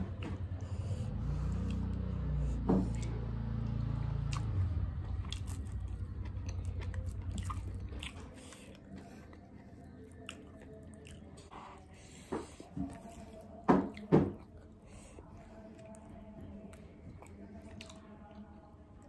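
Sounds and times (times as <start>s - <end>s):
chewing: 0.0s - 2.1s, 2.8s - 19.0s
low droning hum: 0.0s - 11.8s.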